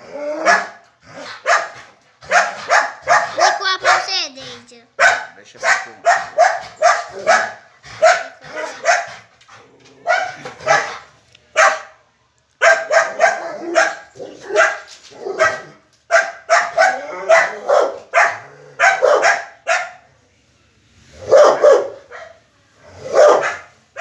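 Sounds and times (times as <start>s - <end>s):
dog barking rapidly: 0.4s - 9.2s, 10.1s - 11.0s, 11.6s - 11.9s, 12.6s - 20.0s, 21.3s - 22.3s, 23.1s - 24.0s.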